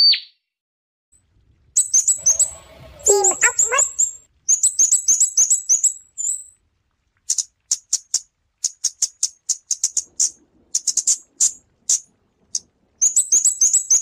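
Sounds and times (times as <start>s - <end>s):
bird calling with high ticks: 0.0s - 0.4s, 1.8s - 6.6s, 7.2s - 14.0s.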